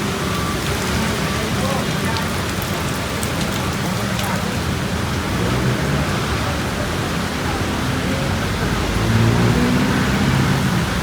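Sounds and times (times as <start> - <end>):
heavy rain: 0.0 - 11.0
wind: 0.0 - 11.0
vehicle engine hum: 4.7 - 11.0.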